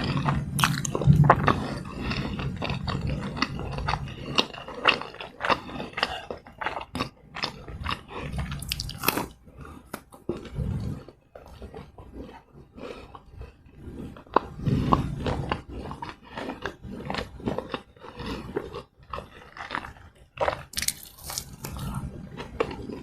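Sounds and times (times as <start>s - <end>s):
chewing and mouth sounds: 0.0s - 23.0s
mouth clicks and smacks: 0.6s - 1.7s, 20.4s - 22.0s
soft low thuds: 1.0s - 1.9s.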